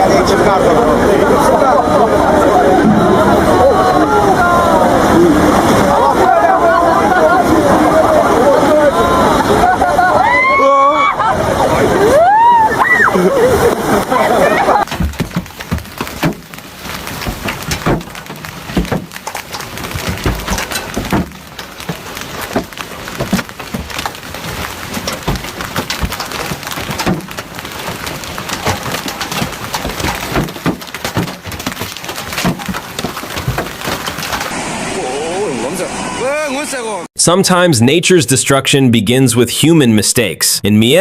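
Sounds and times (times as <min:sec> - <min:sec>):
heavy rain falling: 0:00.0 - 0:36.7
sharp cracks and knocks: 0:14.8 - 0:34.5.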